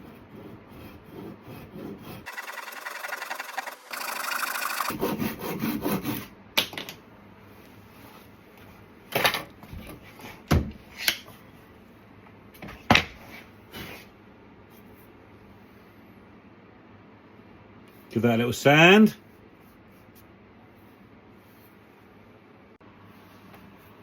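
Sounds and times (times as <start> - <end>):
hand saw cutting wood: 0.3 - 6.3.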